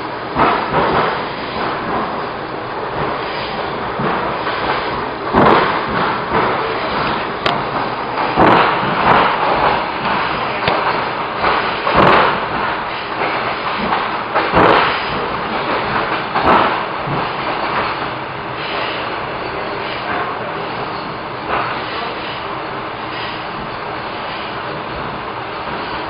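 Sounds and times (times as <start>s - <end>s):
train rumble inside carriage: 0.0s - 26.0s
heavy wheel knocks on track: 3.0s - 18.1s.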